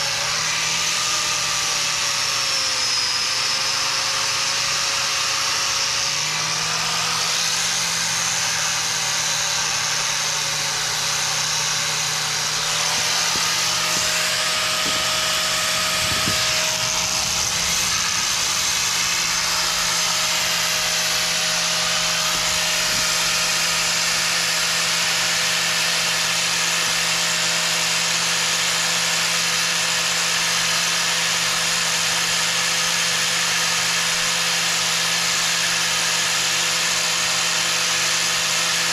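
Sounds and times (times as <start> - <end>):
angle grinder motor whine: 0.0 - 38.9
wire brush scratching metal: 12.0 - 25.0.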